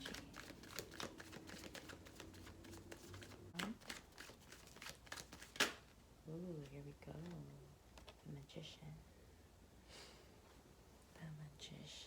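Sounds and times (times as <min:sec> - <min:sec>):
cards shuffling: 0:00.0 - 0:06.0
card snapping out of deck: 0:04.8 - 0:05.9.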